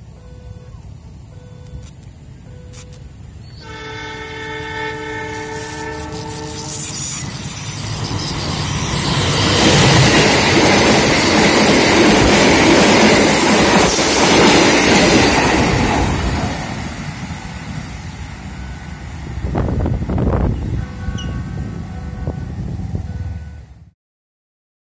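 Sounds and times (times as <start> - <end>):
passenger train passing at speed: 2.0 - 24.0.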